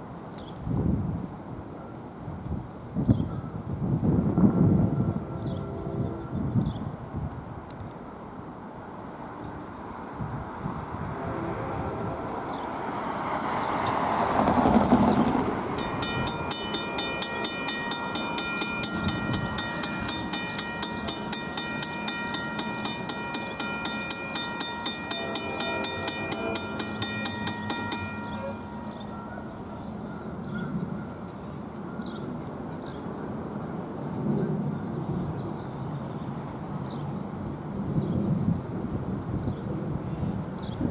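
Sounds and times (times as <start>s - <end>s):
rush of rail-side noise: 3.8s - 35.3s, 35.9s - 40.5s
railroad crossing bell ringing: 15.5s - 31.7s.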